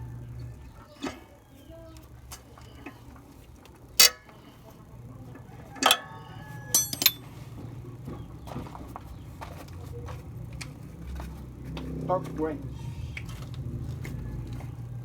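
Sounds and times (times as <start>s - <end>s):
metal tools clinking: 4.0s - 4.2s, 6.7s - 7.2s
low steady hum: 6.7s - 7.4s.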